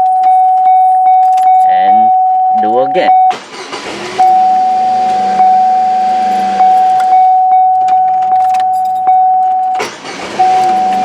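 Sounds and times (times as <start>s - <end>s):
car starter cranking: 0.0s - 2.4s, 3.1s - 11.0s
car warning chime: 0.0s - 11.0s
car engine running: 3.1s - 11.0s.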